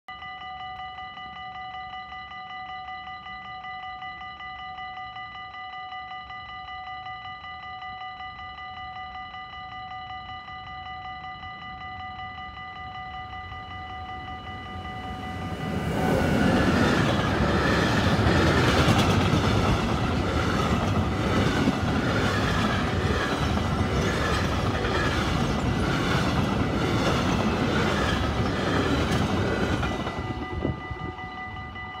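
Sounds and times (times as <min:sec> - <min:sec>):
level-crossing warning bell: 0:00.1 - 0:32.0
freight train passing: 0:10.7 - 0:32.0
wheels clacking over rail joints: 0:14.7 - 0:31.2.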